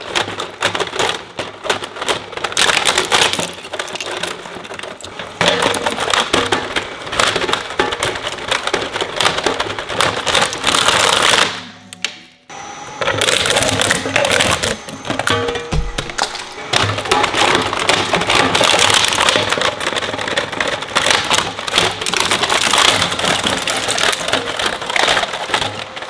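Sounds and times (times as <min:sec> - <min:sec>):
shredder cracking plastic: 0:00.0 - 0:12.3, 0:13.0 - 0:26.0.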